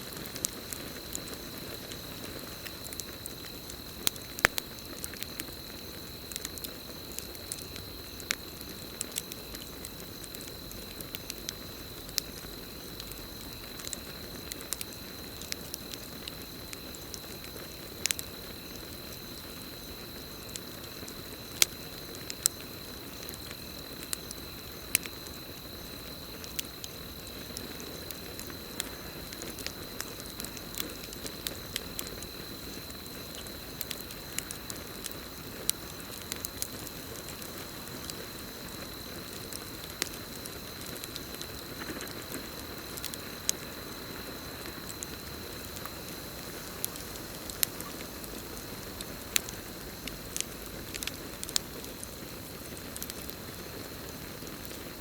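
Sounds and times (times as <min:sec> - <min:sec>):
campfire crackling and popping: 0:00.0 - 0:55.0
low rush of flames: 0:25.6 - 0:55.0.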